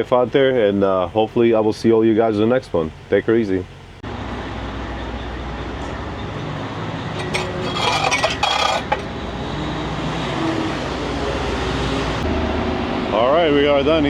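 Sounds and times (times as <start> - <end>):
clinking and rattling: 7.2 - 9.2.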